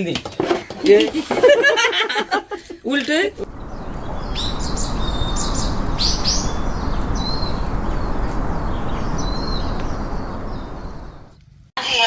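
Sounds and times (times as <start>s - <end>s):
steady rushing noise: 3.3s - 11.4s
songbirds chirping: 3.3s - 11.6s.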